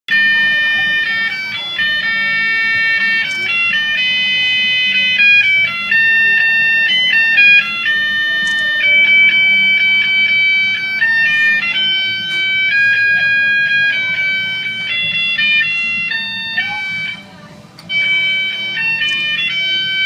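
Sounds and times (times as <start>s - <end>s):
electronic beeping tune: 0.1s - 20.0s.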